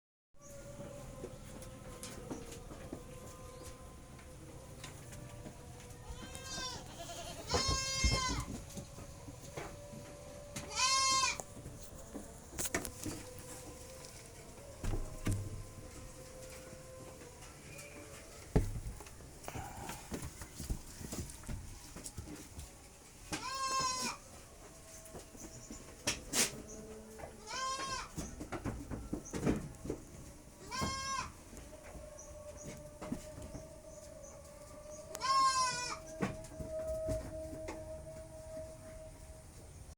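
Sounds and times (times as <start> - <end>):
goat bleating: 6.0 - 8.6, 10.6 - 11.4, 23.4 - 24.2, 27.4 - 28.2, 30.6 - 31.4, 35.1 - 36.1.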